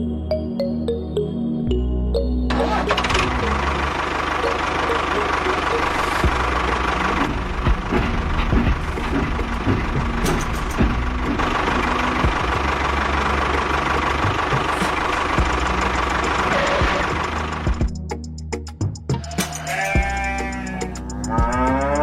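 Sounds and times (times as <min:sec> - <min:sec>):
small engine running: 0:02.7 - 0:17.9
engine knocks: 0:02.9 - 0:18.0.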